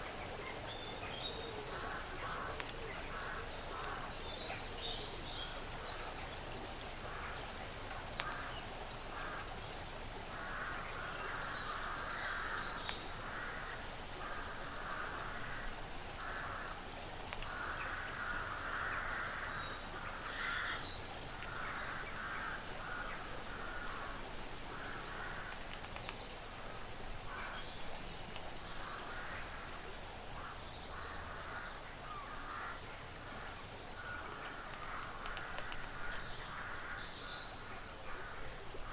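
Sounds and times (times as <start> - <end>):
sharp clicks: 25.5 - 26.2, 34.2 - 36.3.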